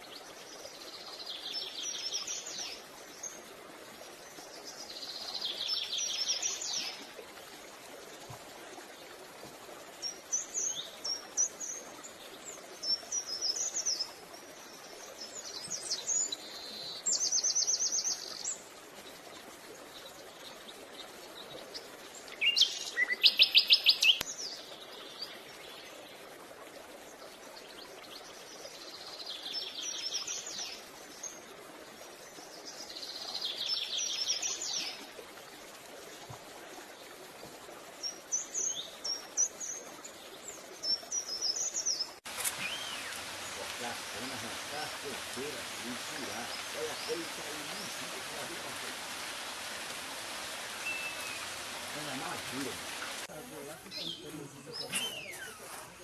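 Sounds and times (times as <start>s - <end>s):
small songbirds trilling: 38.0s - 55.8s.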